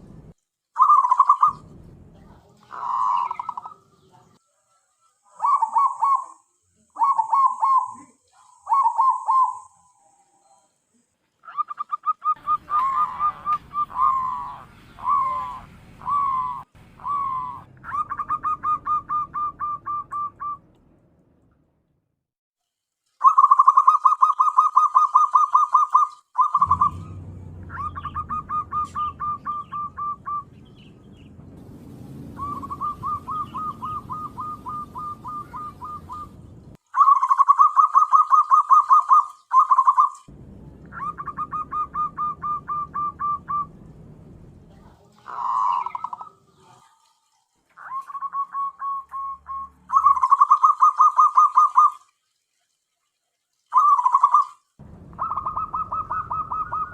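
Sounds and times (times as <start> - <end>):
low background rumble: 0.0 - 0.4, 1.6 - 3.9, 26.6 - 36.8, 40.3 - 45.7, 54.8 - 56.9
dove trilled cooing: 0.8 - 1.6, 2.6 - 4.0, 5.3 - 10.6, 11.4 - 20.6, 23.2 - 30.9, 32.4 - 36.4, 37.0 - 40.2, 40.9 - 43.8, 45.2 - 46.9, 47.8 - 52.0, 55.2 - 56.9.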